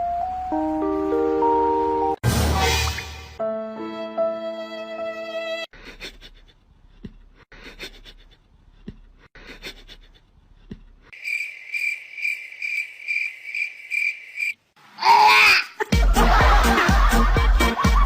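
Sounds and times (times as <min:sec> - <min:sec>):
insect chirping: 0:11.1 - 0:14.7.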